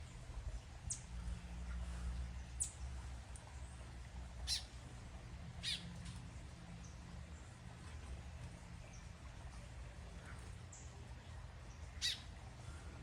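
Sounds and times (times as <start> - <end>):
steady low hum: 0.0 - 13.0
bird sharp high calls: 4.5 - 4.7, 5.6 - 5.9, 12.0 - 12.3.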